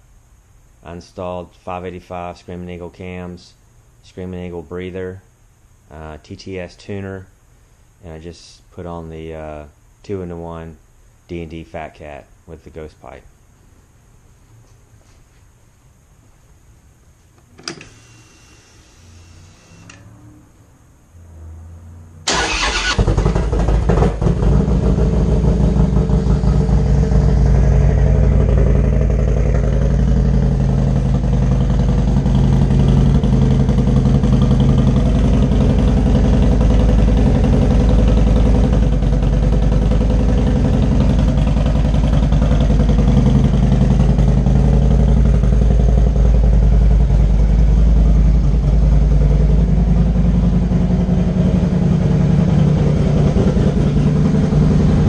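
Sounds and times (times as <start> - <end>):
motorcycle engine starting and idling: 22.2 - 55.0.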